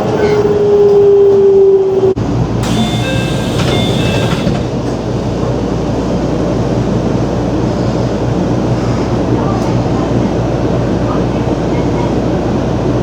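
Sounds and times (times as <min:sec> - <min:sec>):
electric train rumble: 0:02.2 - 0:09.3
faint high squeaking: 0:02.6 - 0:05.0.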